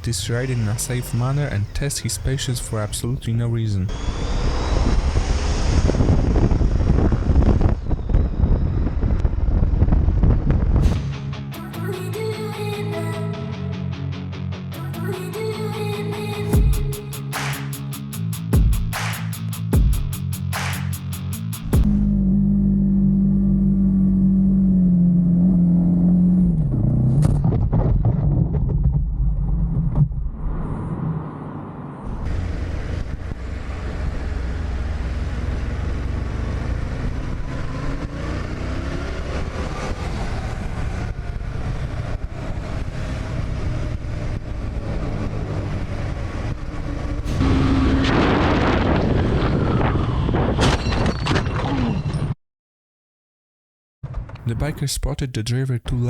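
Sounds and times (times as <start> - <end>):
wind buffeting microphone: 3.9 - 11.0
guitar music: 10.9 - 22.1
vehicle engine running: 21.6 - 25.6.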